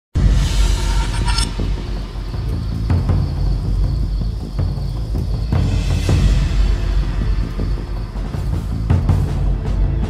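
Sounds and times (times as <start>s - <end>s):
music with deep drums: 1.6s - 10.0s.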